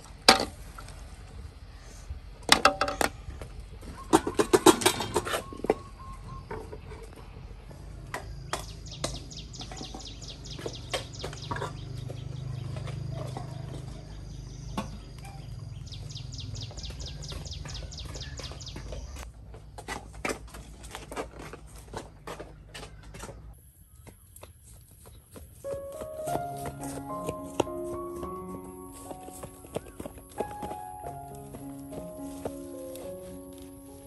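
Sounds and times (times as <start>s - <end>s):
bird chirping rapidly: 4.0s - 7.0s, 8.3s - 13.2s, 14.0s - 19.2s.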